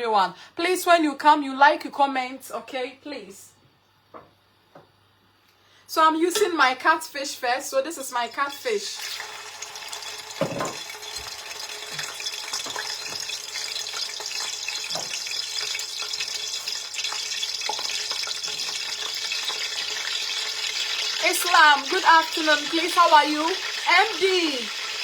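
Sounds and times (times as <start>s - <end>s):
fish sizzling in hot oil: 8.4s - 25.0s.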